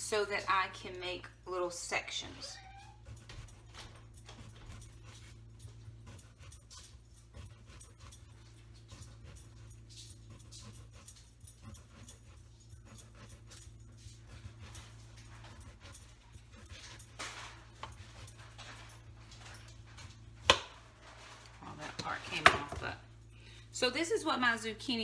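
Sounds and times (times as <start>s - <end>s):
steady low hum: 0.0s - 25.0s
dog panting: 1.5s - 20.2s.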